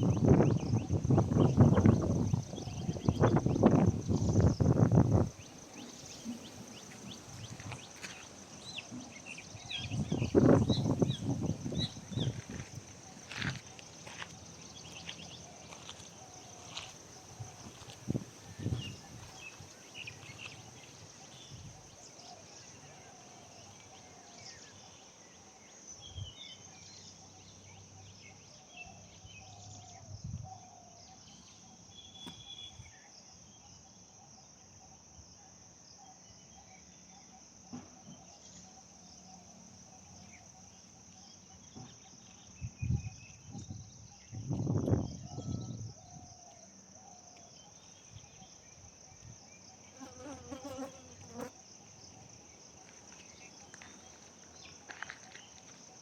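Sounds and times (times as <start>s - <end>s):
insects droning: 0.0s - 56.0s
faint bird chirps: 26.0s - 35.1s.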